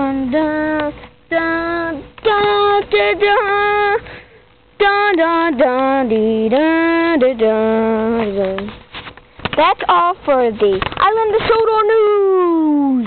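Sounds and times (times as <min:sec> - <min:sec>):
child singing without words: 0:00.0 - 0:04.0, 0:04.8 - 0:08.7.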